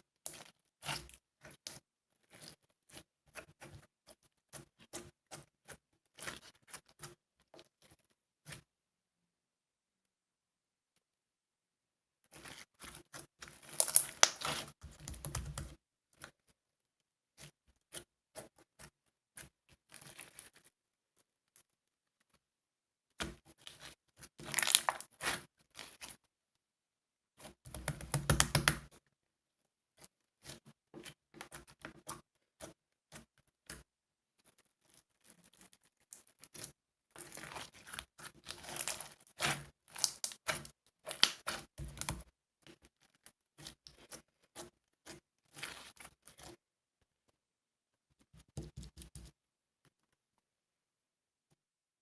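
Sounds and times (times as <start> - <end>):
small clicks and taps: 14.9 - 16.4, 27.7 - 28.9.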